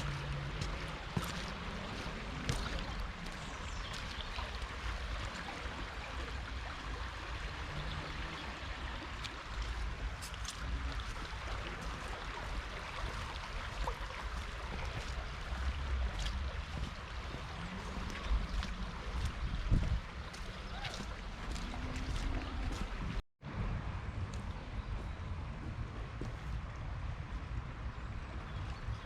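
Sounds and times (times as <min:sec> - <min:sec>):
floodwater rushing: 0:00.0 - 0:23.2.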